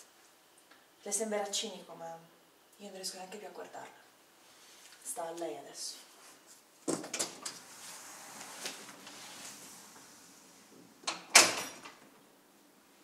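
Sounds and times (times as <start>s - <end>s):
door closing: 11.0s - 12.1s.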